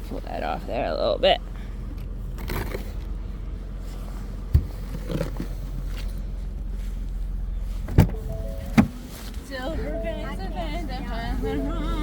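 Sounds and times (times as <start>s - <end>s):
soft bump: 7.8s - 9.4s.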